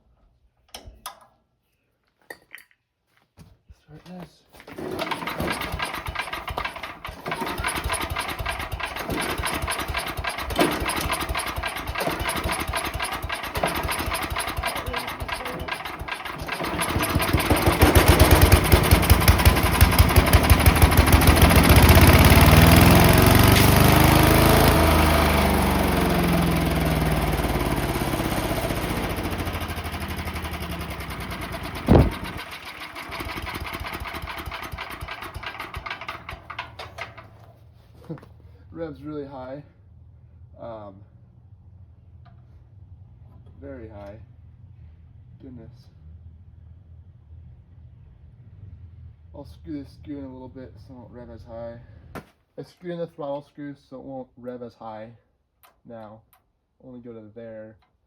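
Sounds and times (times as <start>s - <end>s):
small engine revving: 4.7s - 36.6s.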